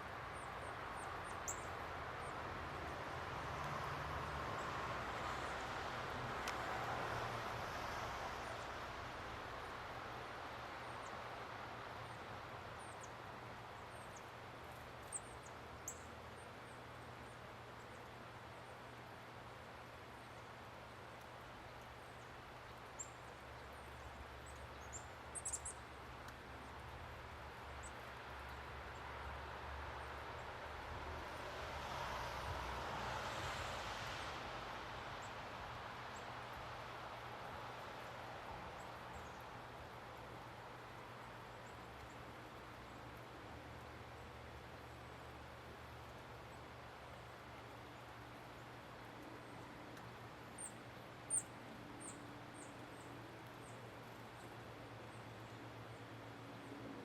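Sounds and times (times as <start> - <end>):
small birds chirping: 0.4 - 2.3, 13.8 - 18.2, 21.8 - 27.0, 38.7 - 56.7.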